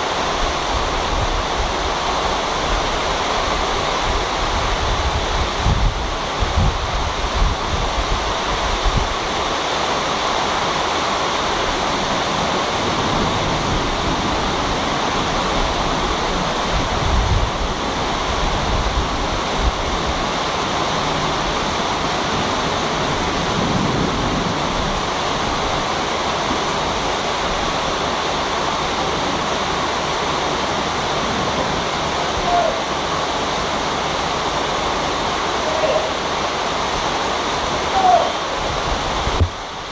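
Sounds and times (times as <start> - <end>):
heavy rain hissing: 0.0 - 39.9
wind rumble on microphone: 0.3 - 9.6, 11.5 - 28.5, 37.9 - 39.9.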